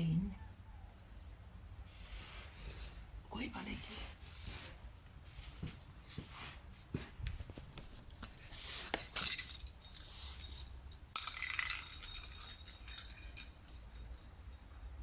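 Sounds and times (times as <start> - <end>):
cat toy ball jingling: 9.1 - 15.0.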